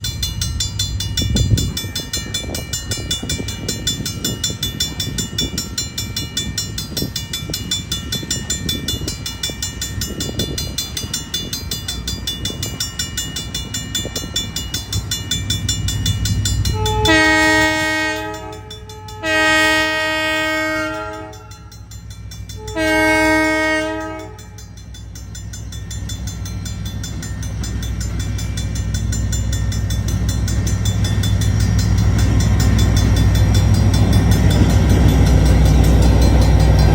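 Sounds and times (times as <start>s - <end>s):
train clattering along track: 0.0s - 36.9s
train horn blasts: 16.7s - 21.7s, 22.6s - 24.6s.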